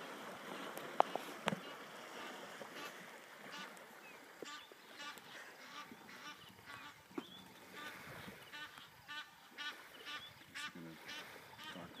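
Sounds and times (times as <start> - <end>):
deeper bird call: 4.5 - 12.0.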